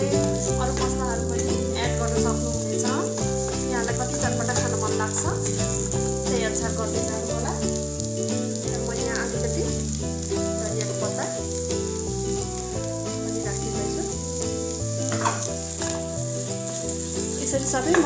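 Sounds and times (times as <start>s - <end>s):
filling sizzling in a steel pan: 0.0s - 18.0s
instrumental background music: 0.0s - 18.0s
wooden spatula stirring: 10.2s - 18.0s.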